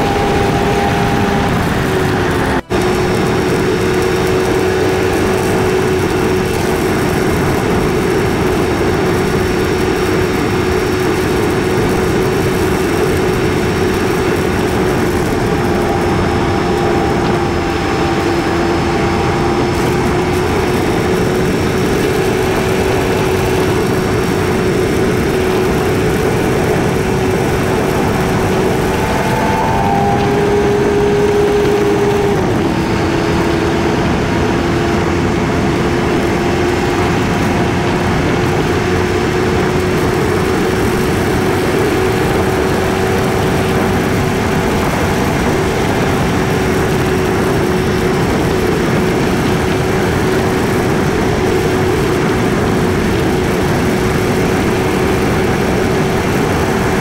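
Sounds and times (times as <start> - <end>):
motorcycle engine running: 0.0 - 57.0
riding wind noise: 0.0 - 57.0.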